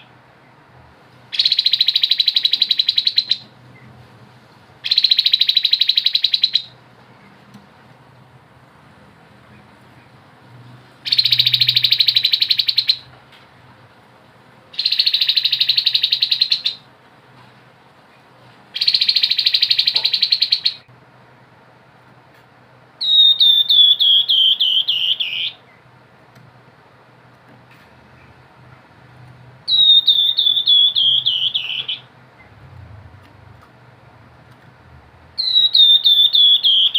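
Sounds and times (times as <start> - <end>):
bird whistled notes: 4.9 - 6.7, 11.1 - 13.1, 14.8 - 16.8, 18.8 - 20.8, 23.0 - 25.6, 29.7 - 32.1, 35.4 - 36.9.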